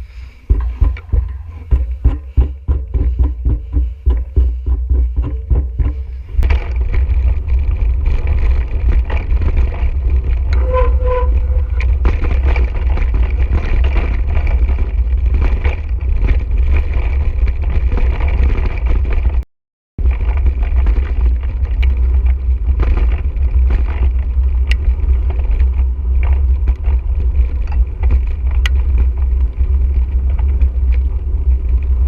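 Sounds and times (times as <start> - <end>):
wind and tyre rumble: 0.0 - 32.0
bike rattling over rocks: 0.4 - 19.4, 20.0 - 32.0
two-note squeak: 10.6 - 11.8.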